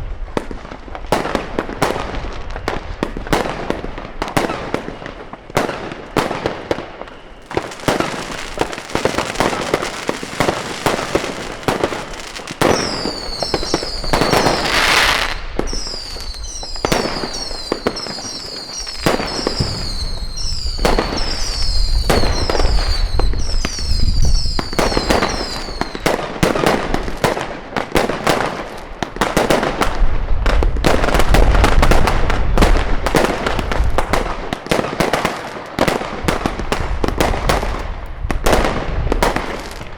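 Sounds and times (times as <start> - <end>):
fireworks crackling and banging: 0.0 - 39.9
high falling whistles: 12.6 - 26.0.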